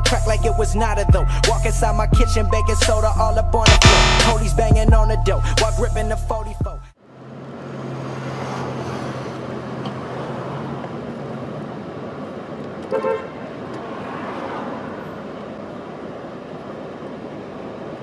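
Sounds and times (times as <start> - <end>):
car horn tooting: 3.7 - 4.4
street traffic noise: 7.0 - 18.0.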